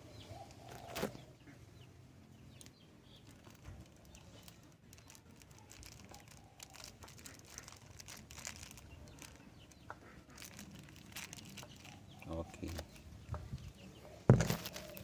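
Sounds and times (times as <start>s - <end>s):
packet crinkling and rustling: 0.5s - 1.2s, 2.5s - 12.9s, 14.3s - 15.0s.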